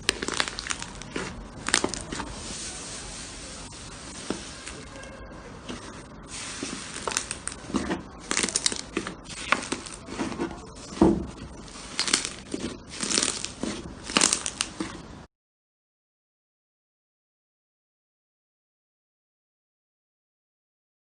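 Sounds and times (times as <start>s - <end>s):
slime crackling pops and squishes: 0.0s - 2.2s, 6.6s - 11.0s, 11.7s - 15.0s.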